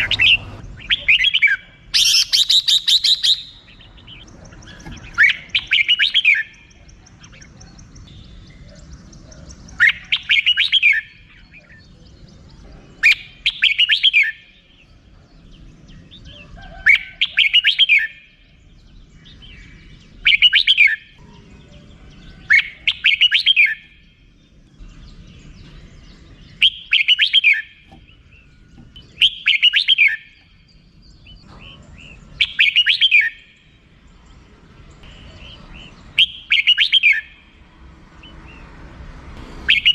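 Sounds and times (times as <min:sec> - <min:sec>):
bird chattering call: 0:00.0 - 0:12.0, 0:19.3 - 0:24.1, 0:26.5 - 0:30.7, 0:31.3 - 0:33.6, 0:35.0 - 0:37.4, 0:39.7 - 0:39.9.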